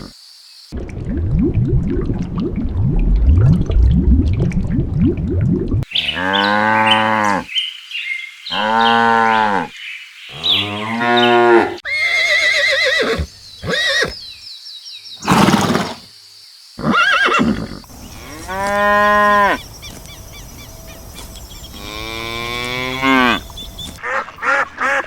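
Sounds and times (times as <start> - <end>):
cow mooing: 10.4 - 11.8, 21.8 - 23.4.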